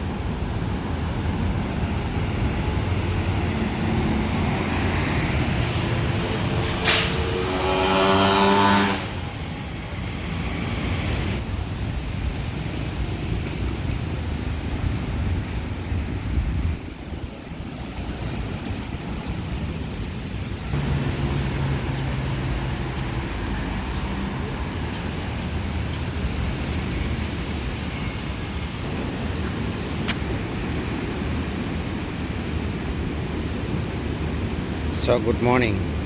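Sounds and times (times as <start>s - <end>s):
wind on microphone: 0.0s - 34.9s
vehicle engine running: 20.8s - 28.2s.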